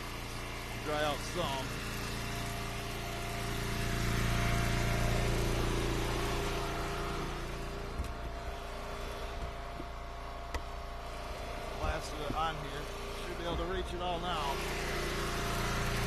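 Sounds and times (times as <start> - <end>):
wood splitter engine running: 0.0 - 16.0
light knocks: 9.3 - 10.8.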